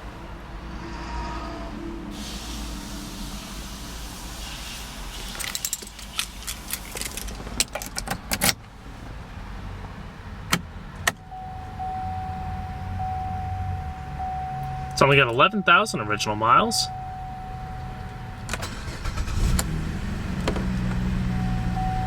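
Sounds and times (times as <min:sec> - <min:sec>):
car engine idling: 0:00.0 - 0:22.0
light metallic clicks and rattles: 0:05.3 - 0:08.7
steady electronic tone: 0:11.2 - 0:18.4.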